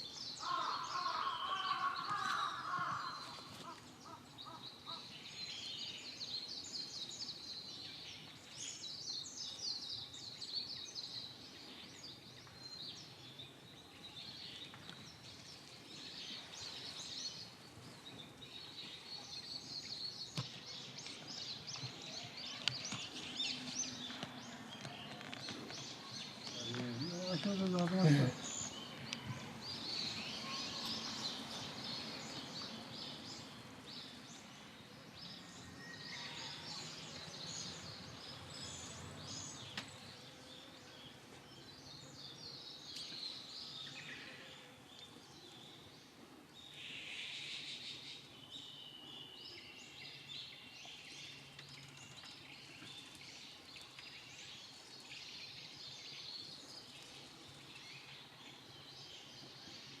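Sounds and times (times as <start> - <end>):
bulbuls chirping: 14.6 - 35.5.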